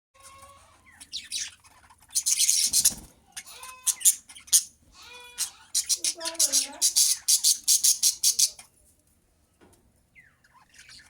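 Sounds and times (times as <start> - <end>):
budgerigars chirping: 0.2 - 8.7, 10.2 - 11.0.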